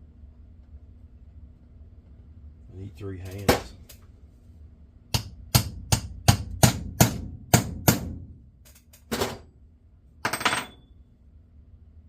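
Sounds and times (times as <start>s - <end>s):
hammer tapping metal: 5.1s - 8.2s.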